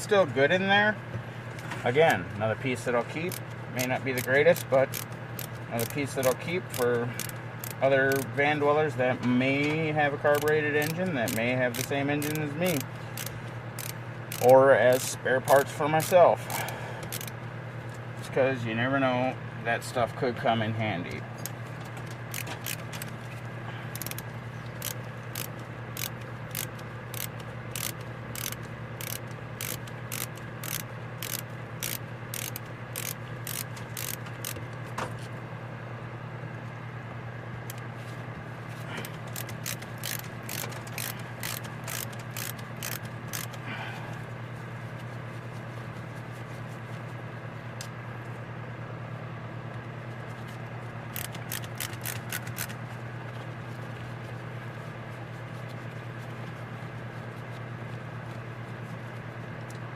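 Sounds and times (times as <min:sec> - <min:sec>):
ratchet tool clicking: 0:03.3 - 0:08.3, 0:10.3 - 0:17.3, 0:22.2 - 0:23.1, 0:23.9 - 0:34.6, 0:39.0 - 0:43.6, 0:51.1 - 0:52.8.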